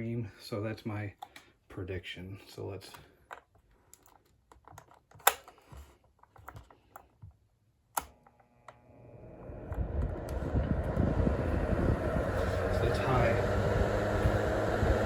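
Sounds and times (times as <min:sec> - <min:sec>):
fan motor humming: 0:08.0 - 0:15.0.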